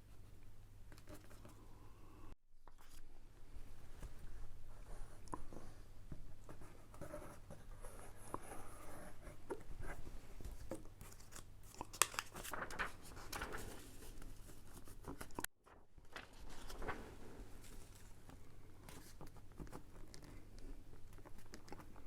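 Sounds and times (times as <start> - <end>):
paper and card rustling: 9.4 - 20.5.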